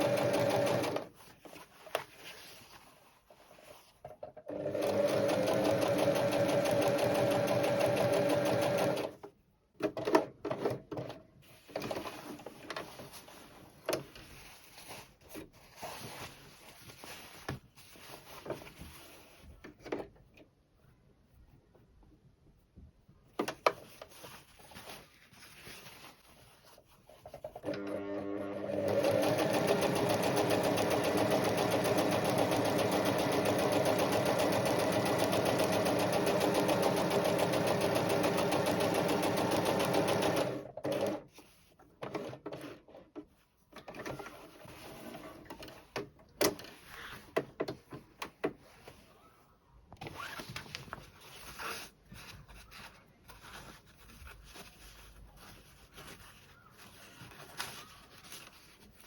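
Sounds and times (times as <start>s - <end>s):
sewing machine stitching: 0.0s - 1.1s, 4.5s - 9.2s, 27.5s - 41.3s.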